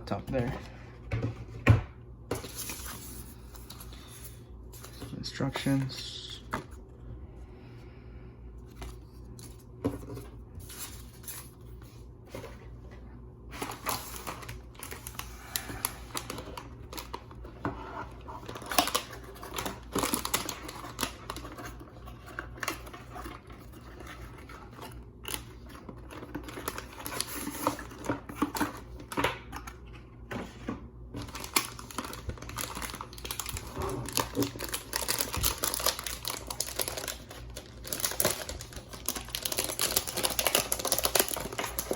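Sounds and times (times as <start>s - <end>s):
packaging crinkling and rustling: 8.6s - 30.4s, 31.0s - 41.9s.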